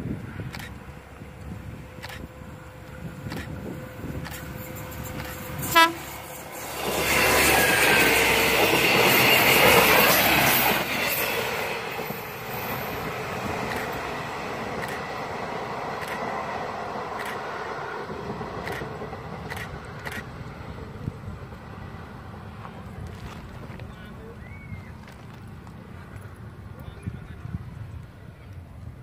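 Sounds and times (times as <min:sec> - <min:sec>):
train wheel and track noise: 0:00.0 - 0:29.0
train horn toot: 0:05.4 - 0:06.4.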